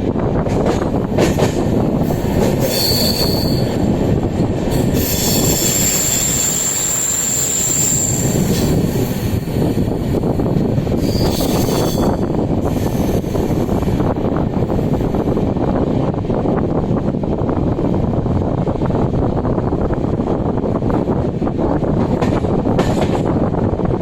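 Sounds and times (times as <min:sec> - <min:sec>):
train rumbling on rails: 0:00.0 - 0:24.0
train wheels squealing: 0:02.0 - 0:04.0, 0:04.7 - 0:09.5, 0:10.9 - 0:13.8.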